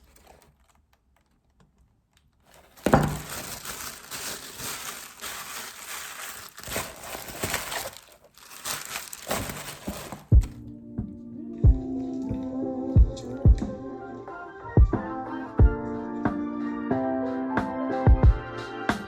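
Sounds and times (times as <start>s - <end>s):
crinkling and rustling: 0.0s - 10.7s.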